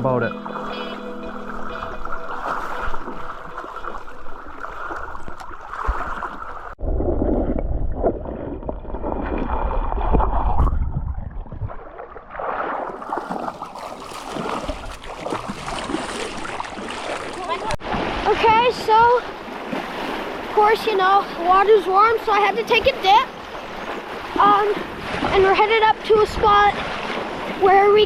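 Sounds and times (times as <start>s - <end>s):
river water gurgling: 0.0s - 6.8s, 11.8s - 28.0s
wind rumbling on microphone: 1.7s - 20.6s.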